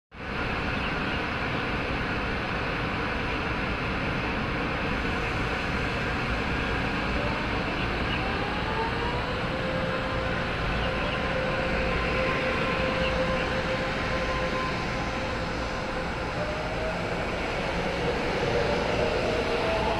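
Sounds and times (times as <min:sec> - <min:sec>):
train rumble: 0:00.1 - 0:19.9.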